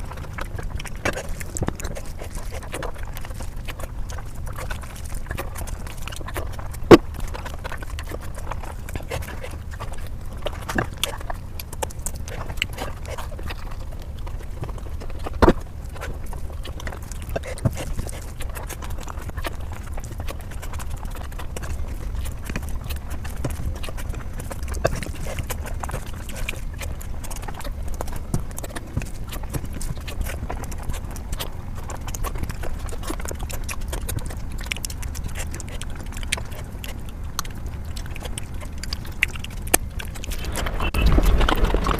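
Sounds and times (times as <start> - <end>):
low steady hum: 0.0 - 41.9
small irregular clicks: 0.0 - 41.9
wet chewing and lip-smacking: 0.0 - 41.9.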